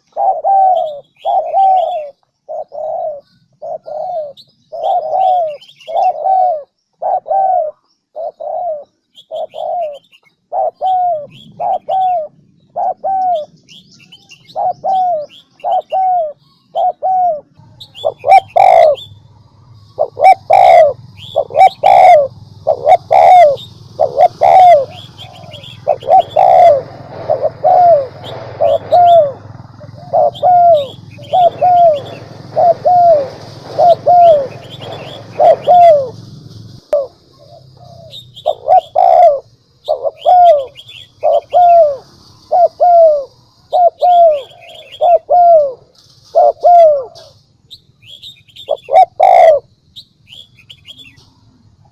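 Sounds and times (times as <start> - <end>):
dove cooing: 0.0 - 19.1, 19.8 - 47.4, 48.5 - 49.7
small birds chirping: 0.0 - 51.9
steady low hum: 10.4 - 51.9
high hiss: 20.8 - 37.3, 39.0 - 45.1.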